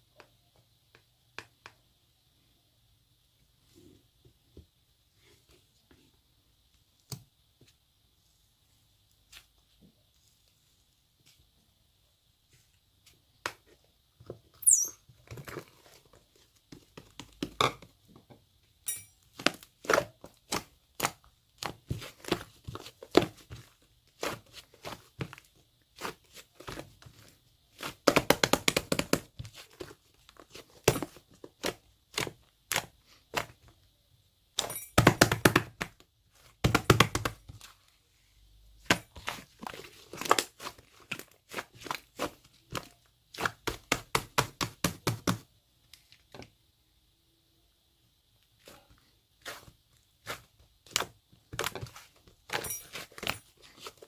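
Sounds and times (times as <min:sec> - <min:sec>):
hands squishing slime: 0:19.3 - 0:33.6, 0:38.8 - 0:45.4, 0:48.6 - 0:54.0.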